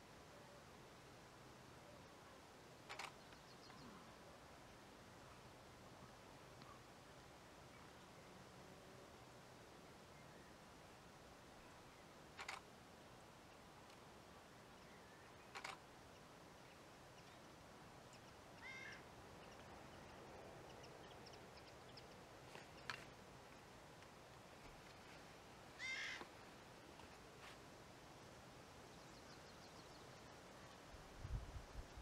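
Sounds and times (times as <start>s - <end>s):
faint field ambience: 0.0s - 32.0s
bird calling: 18.1s - 19.7s, 25.8s - 26.3s.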